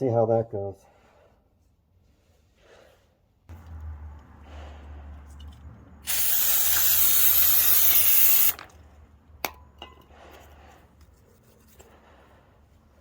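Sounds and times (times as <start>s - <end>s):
aerosol can spraying: 6.0s - 8.6s.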